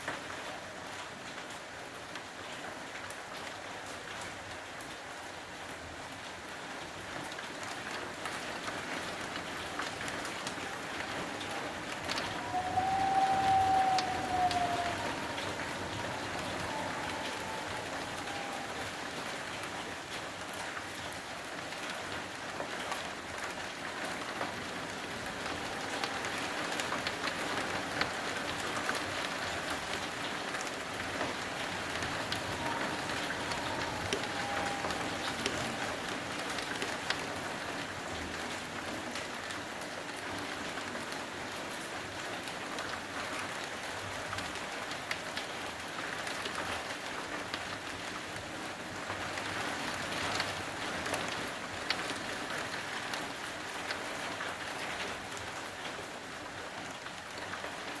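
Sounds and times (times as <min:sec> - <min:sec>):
heavy rain pouring: 0:00.0 - 0:58.0
faint whistle-like tone: 0:11.5 - 0:18.9, 0:32.0 - 0:36.0.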